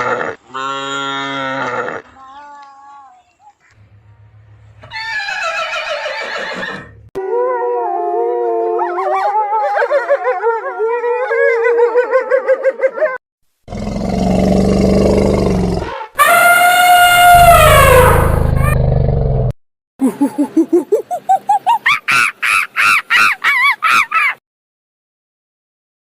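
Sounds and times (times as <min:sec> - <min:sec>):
animal calls: 0:15.8 - 0:18.8.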